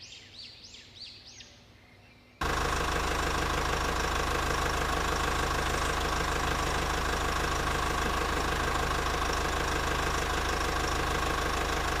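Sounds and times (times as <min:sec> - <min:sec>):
small motor running: 0:02.4 - 0:12.0.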